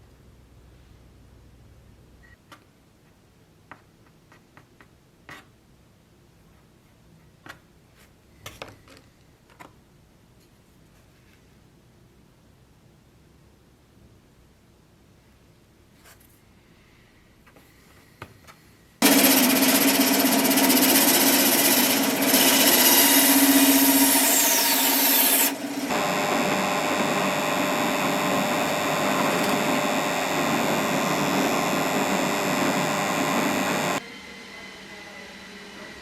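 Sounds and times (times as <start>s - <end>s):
power tool running: 19.0s - 34.0s.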